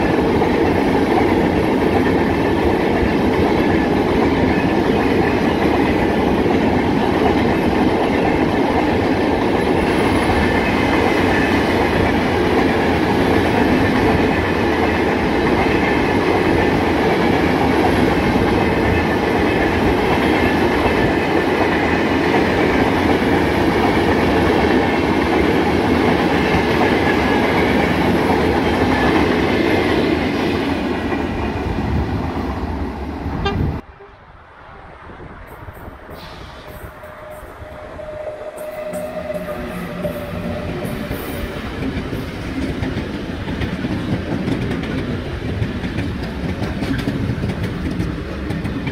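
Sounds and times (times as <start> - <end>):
train wheels rumbling on rails: 0.0 - 48.9
wheels clacking over rail joints: 39.1 - 48.9.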